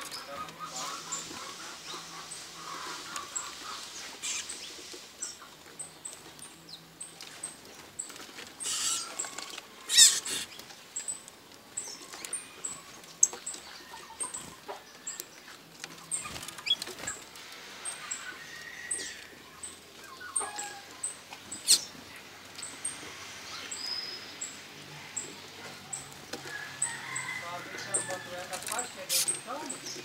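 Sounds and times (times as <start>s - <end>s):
birds chirping: 0.0s - 30.0s
scratchy bird bursts: 9.9s - 10.5s.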